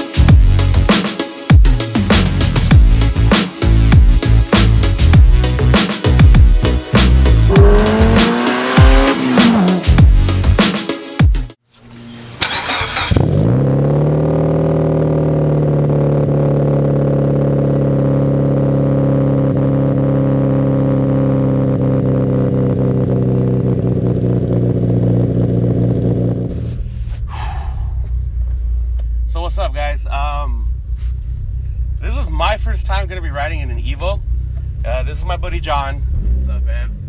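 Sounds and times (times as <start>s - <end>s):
car engine starting and idling: 11.9s - 37.0s.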